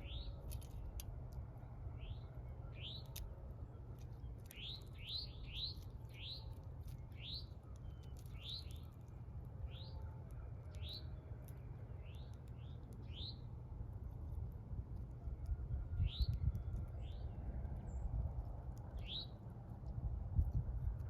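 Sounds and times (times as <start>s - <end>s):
small bird chirping: 0.0s - 1.1s, 1.8s - 14.4s, 15.9s - 21.0s
steady low rumble: 0.0s - 21.0s.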